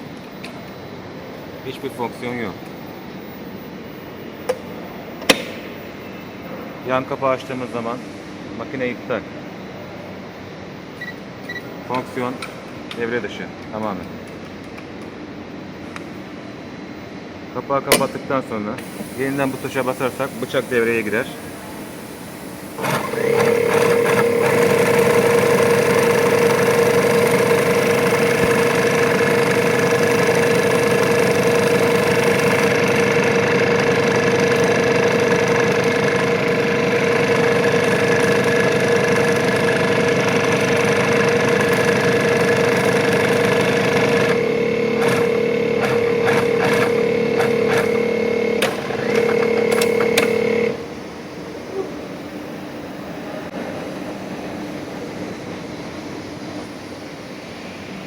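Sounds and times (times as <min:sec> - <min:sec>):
sewing machine whine: 0:18.8 - 0:51.1
sewing machine sharp clicks: 0:22.8 - 0:36.3, 0:45.0 - 0:50.8.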